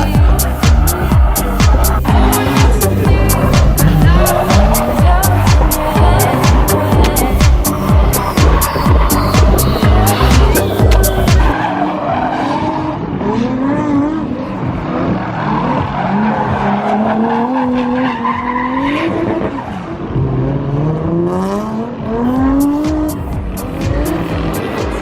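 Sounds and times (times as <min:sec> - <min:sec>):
music with a beat: 0:00.0 - 0:11.6, 0:22.2 - 0:25.0
car engine revving: 0:00.0 - 0:25.0
tyres skidding: 0:00.0 - 0:25.0.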